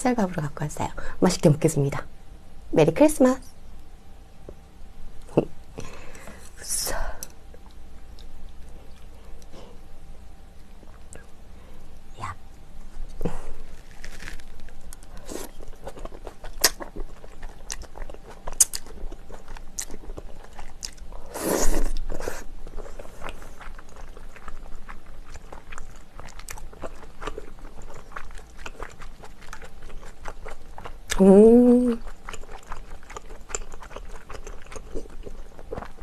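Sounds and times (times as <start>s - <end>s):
person chewing food: 7.5s - 9.9s, 12.9s - 31.2s, 32.0s - 36.0s.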